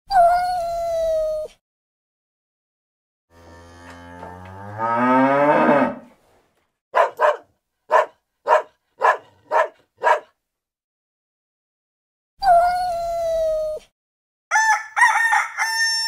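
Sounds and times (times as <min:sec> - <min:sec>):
cow mooing: 0:03.3 - 0:06.1
dog barking: 0:06.9 - 0:10.4.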